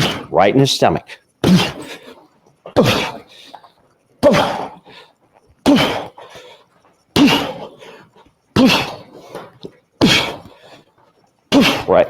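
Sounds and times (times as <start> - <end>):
gloved punches on punching dummy: 1.4 - 1.9, 7.2 - 7.7, 10.0 - 10.5.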